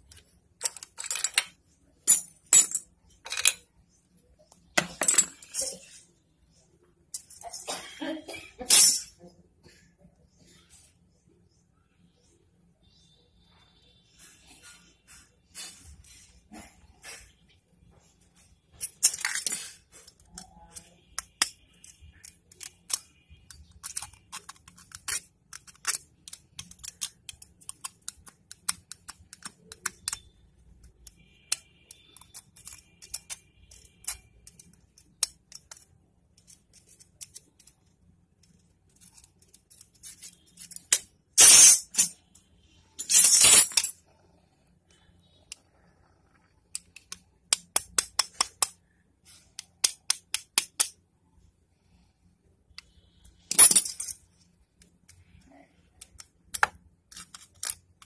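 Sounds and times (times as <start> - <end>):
hand tools clicking and scraping: 0.0 - 3.6, 18.4 - 42.3, 43.0 - 44.0, 46.7 - 51.0, 52.8 - 55.4, 56.0 - 58.0.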